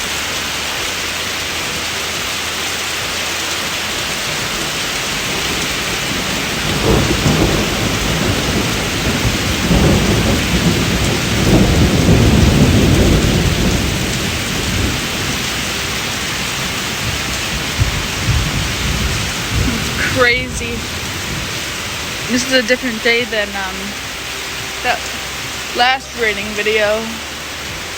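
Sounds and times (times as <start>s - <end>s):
heavy rain: 0.0s - 27.9s
rolling thunder: 4.0s - 23.2s.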